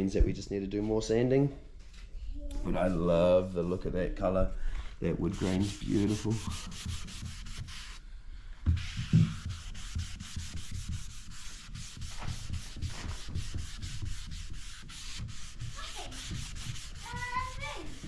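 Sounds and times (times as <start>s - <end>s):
sandpaper rubbing wood: 5.2s - 8.0s, 8.8s - 18.0s.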